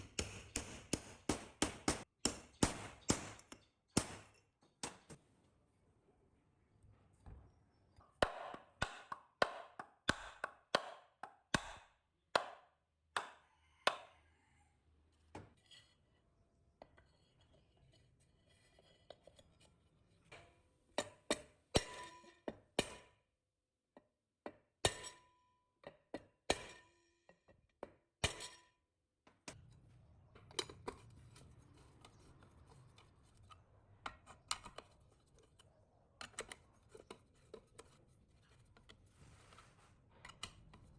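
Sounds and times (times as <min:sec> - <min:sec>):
taps and knocks on metal: 0:00.0 - 0:05.2.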